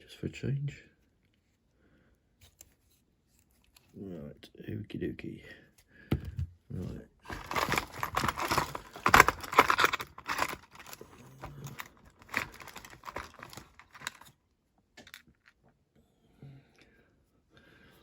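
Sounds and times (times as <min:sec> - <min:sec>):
rustling: 0:07.2 - 0:14.3
small parts clattering and clicking: 0:07.2 - 0:14.4, 0:15.0 - 0:15.6.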